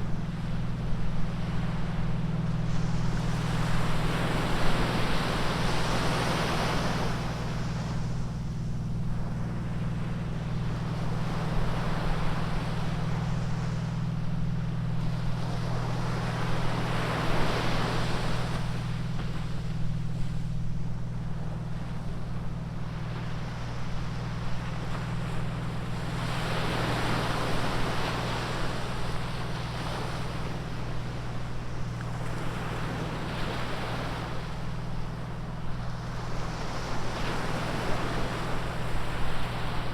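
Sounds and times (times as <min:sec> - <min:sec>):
low surf rumble: 0:00.0 - 0:39.9
waves crashing on beach: 0:23.0 - 0:39.9.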